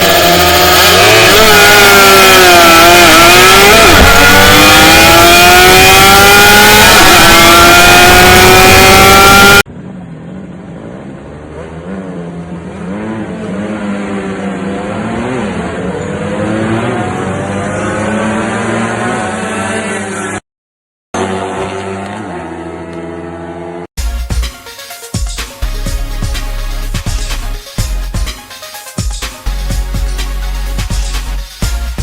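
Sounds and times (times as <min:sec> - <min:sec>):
loud engine accelerating: 0:00.0 - 0:20.4, 0:21.2 - 0:23.9
quieter engine rising and falling: 0:00.0 - 0:20.4, 0:21.2 - 0:23.9.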